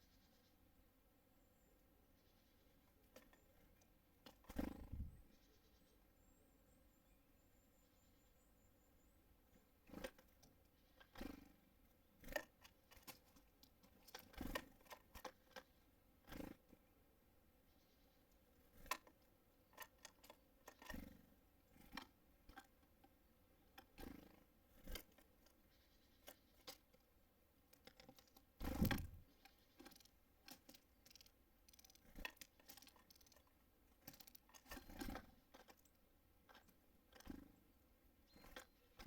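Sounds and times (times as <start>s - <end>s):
birds pecking seeds on feeder: 1.8s - 5.7s, 9.3s - 39.0s.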